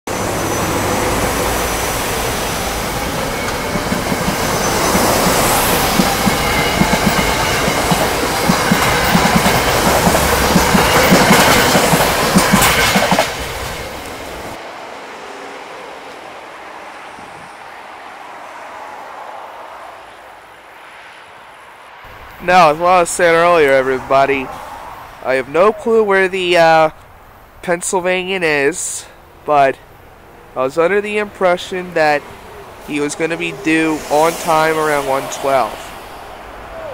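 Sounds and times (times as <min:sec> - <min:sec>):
train passing: 0:00.1 - 0:36.9
wheels clacking over rail joints: 0:00.2 - 0:14.6.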